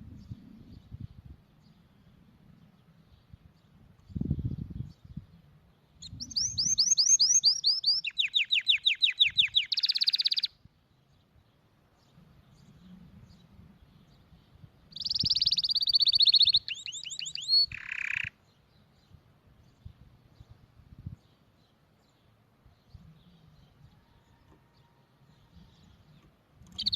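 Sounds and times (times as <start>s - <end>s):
canary singing: 6.0s - 10.6s, 14.9s - 18.4s, 25.4s - 26.9s.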